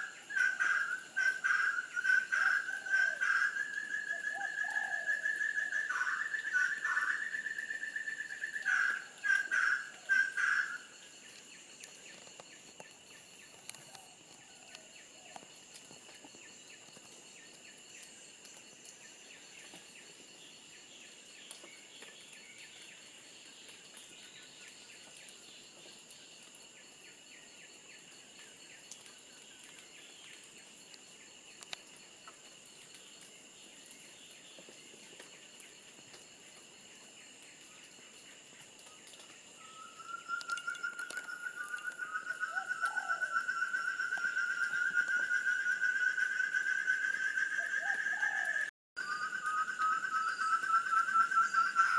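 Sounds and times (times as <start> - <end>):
insect chorus drone: 0.0 - 51.9
rising whistled call: 39.6 - 51.9.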